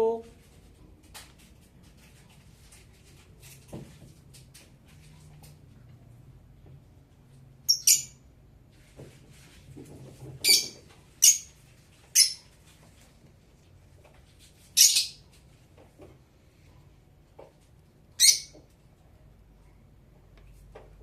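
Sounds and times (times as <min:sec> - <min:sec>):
lovebird shrill chirps: 0:07.7 - 0:08.2, 0:10.4 - 0:11.5, 0:12.2 - 0:12.4, 0:14.8 - 0:15.2, 0:18.2 - 0:18.6.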